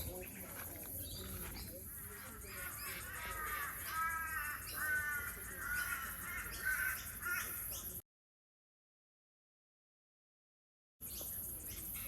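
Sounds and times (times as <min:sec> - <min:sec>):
crow cawing: 0:02.0 - 0:07.7.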